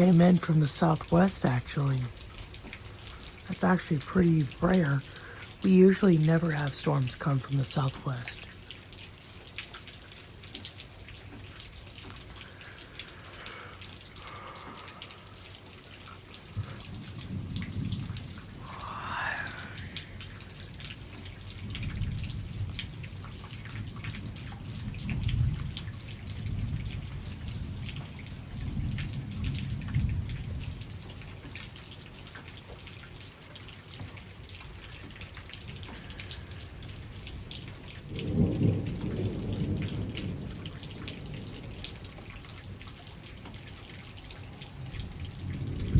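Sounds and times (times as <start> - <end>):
rain dripping and ticking: 0.0 - 45.9
thunder rumbles: 16.5 - 31.0, 35.7 - 42.1, 45.0 - 45.9.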